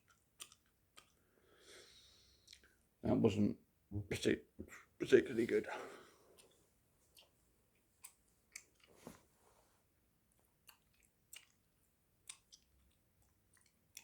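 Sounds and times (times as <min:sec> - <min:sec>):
gum chewing clicks and smacks: 0:00.0 - 0:01.2, 0:02.4 - 0:02.8, 0:06.3 - 0:09.0, 0:10.3 - 0:14.0.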